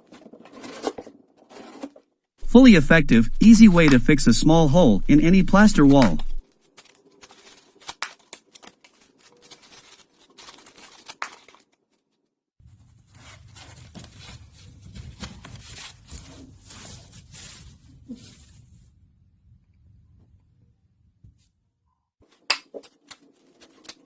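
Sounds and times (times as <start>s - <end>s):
scraping and tearing on plaster wall: 0.0s - 2.2s.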